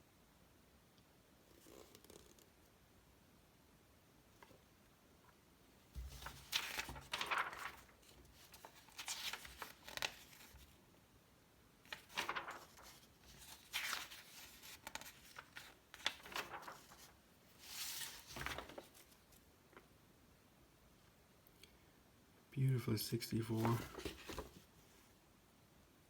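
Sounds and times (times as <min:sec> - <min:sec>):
magazine pages turning: 0:06.0 - 0:10.8, 0:11.9 - 0:19.5, 0:23.5 - 0:24.8.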